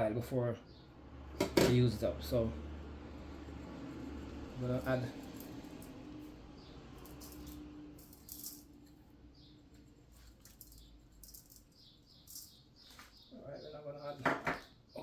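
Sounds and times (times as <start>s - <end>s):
seasoning rattling on raw chicken: 7.0s - 8.7s, 10.1s - 12.5s.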